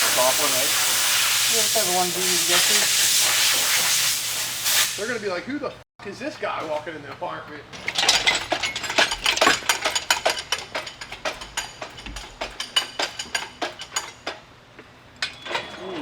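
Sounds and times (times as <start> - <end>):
hand tools clicking and clinking: 6.4 - 16.0.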